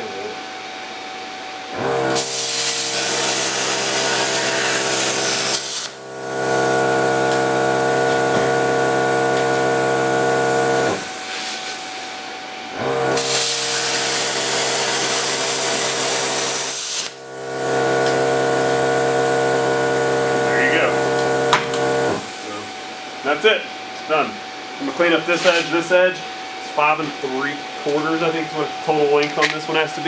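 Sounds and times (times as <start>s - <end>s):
steady motor hum: 0.0s - 25.3s
power tool cutting steel: 1.8s - 11.2s, 12.8s - 22.7s
loud hiss: 2.2s - 12.2s, 13.2s - 23.0s.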